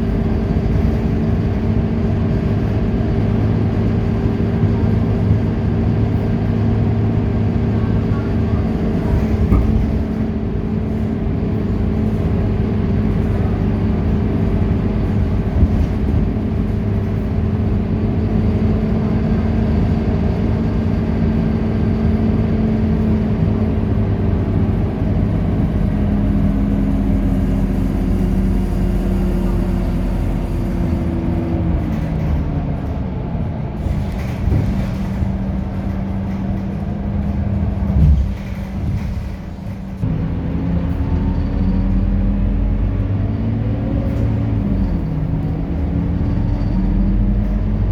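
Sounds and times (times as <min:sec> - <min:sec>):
bus diesel engine droning: 0:00.0 - 0:47.9.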